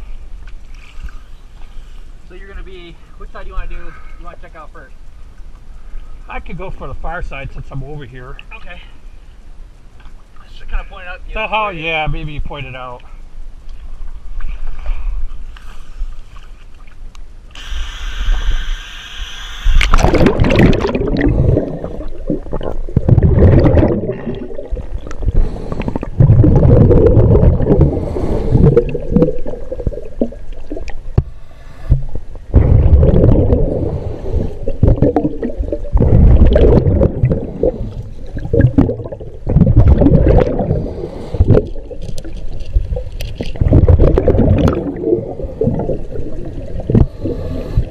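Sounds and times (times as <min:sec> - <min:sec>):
regulator hiss: 0:17.5 - 0:20.0
underwater exhale bubbling: 0:19.8 - 0:47.9.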